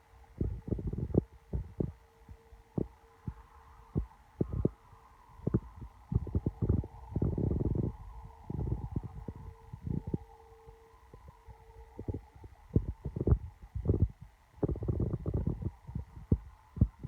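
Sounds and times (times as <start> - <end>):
faint steady hum: 0.0 - 17.0
wind buffeting microphone: 0.3 - 2.0, 4.0 - 4.8, 5.4 - 10.2, 11.1 - 17.0.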